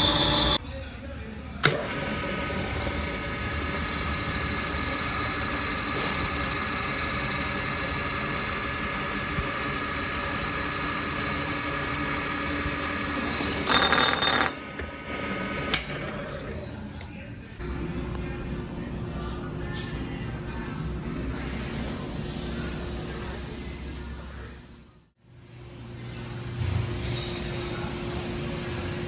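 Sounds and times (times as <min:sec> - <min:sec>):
machine tool high-pitched squeal: 0:00.0 - 0:00.6, 0:03.3 - 0:13.8
harsh grinding burst: 0:03.0 - 0:14.6.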